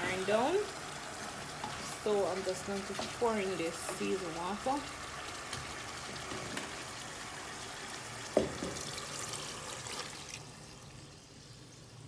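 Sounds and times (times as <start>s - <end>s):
curry simmering: 0.0s - 12.0s
water pouring into a pot: 0.0s - 12.0s
knock: 8.4s - 8.8s.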